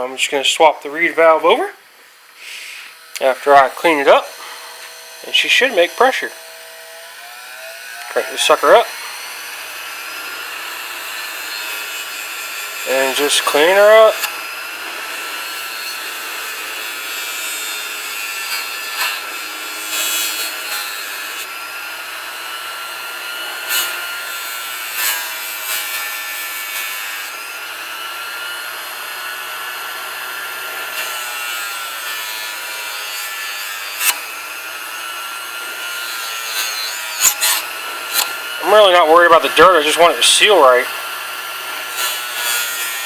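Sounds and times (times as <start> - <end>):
bench grinder whining: 0.0 - 43.0
metal part scraping on grinder: 2.4 - 6.4, 8.0 - 9.3, 12.8 - 14.3, 35.6 - 40.9.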